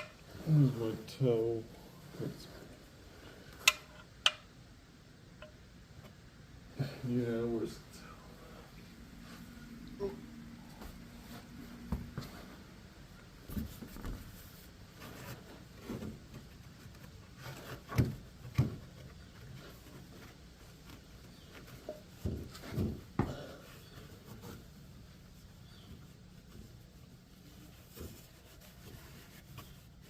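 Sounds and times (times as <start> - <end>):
clunks and knocks of handling: 13.4 - 24.8.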